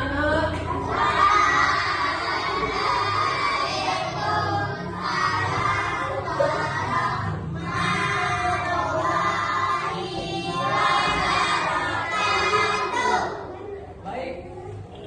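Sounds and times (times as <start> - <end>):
young voices singing in unison: 0.0 - 13.7.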